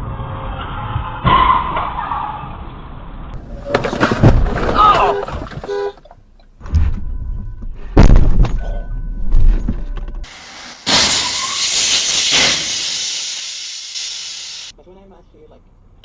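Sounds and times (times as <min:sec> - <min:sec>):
rumbling road noise: 0:00.0 - 0:06.6
loud vehicle crash: 0:03.3 - 0:05.7, 0:10.5 - 0:13.4
loud steady hiss: 0:10.3 - 0:14.7.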